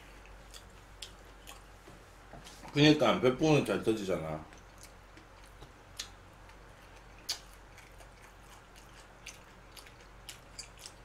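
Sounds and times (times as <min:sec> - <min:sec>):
man chewing food: 0:00.0 - 0:02.8, 0:04.4 - 0:11.0
chopsticks and mouth clicks: 0:04.5 - 0:11.0.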